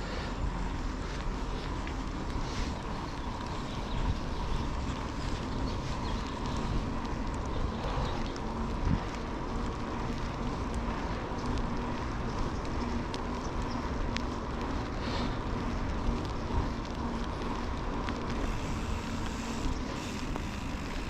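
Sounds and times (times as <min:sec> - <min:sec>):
low hum: 0:00.0 - 0:21.0
vehicle and road noise: 0:00.0 - 0:21.0
faint clicks: 0:04.9 - 0:21.0.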